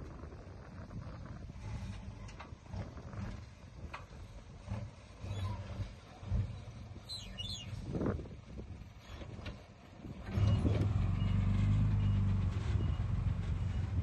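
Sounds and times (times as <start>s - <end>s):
heavy diesel engine running: 7.7s - 14.0s.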